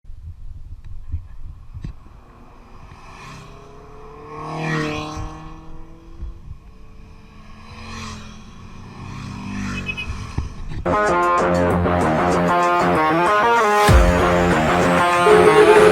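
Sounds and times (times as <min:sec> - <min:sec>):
vehicle engine running: 0:09.1 - 0:15.9.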